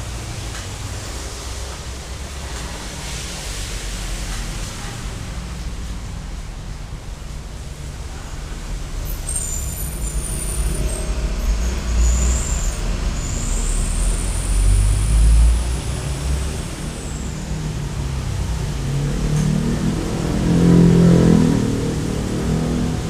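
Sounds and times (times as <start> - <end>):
traffic engine rumble: 0.0 - 23.0
high-pitched whine: 8.2 - 22.6.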